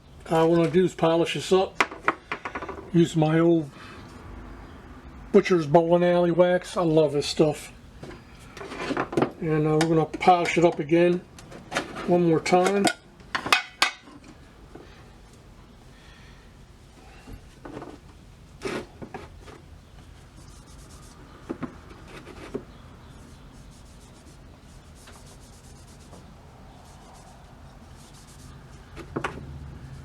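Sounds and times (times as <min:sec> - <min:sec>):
rubbing wax onto metal: 0:17.6 - 0:30.0.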